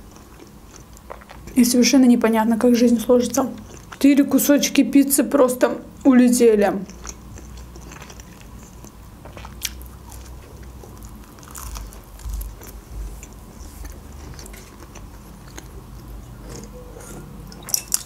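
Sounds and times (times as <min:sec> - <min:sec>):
person chewing pizza crust: 0:00.0 - 0:01.6, 0:03.5 - 0:04.0, 0:06.9 - 0:18.0.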